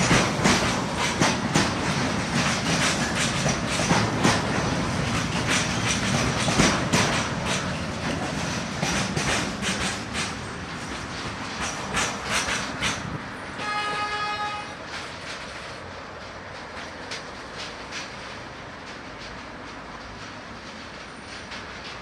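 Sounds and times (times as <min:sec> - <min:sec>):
freight train rolling past: 0:00.0 - 0:22.0
wheels clacking over rail joints: 0:00.0 - 0:22.0
train horn: 0:13.5 - 0:14.8.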